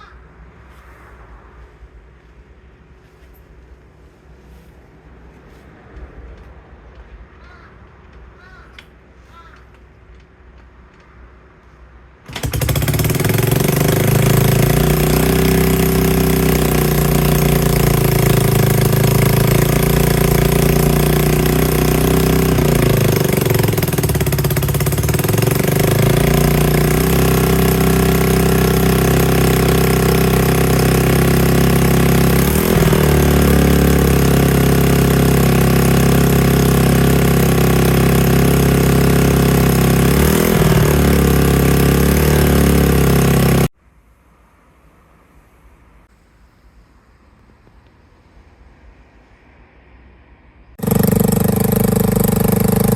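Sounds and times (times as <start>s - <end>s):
motorcycle engine running loudly: 12.3s - 43.7s, 50.8s - 52.9s.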